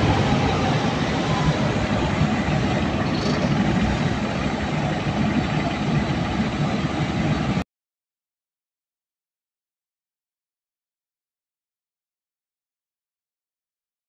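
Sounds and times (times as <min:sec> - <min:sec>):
diesel generator engine running: 0:00.0 - 0:07.6.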